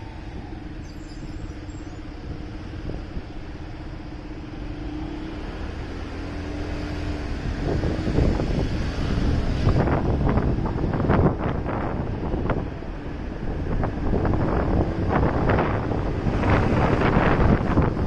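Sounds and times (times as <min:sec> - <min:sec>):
wind buffeting microphone: 0:07.2 - 0:18.0.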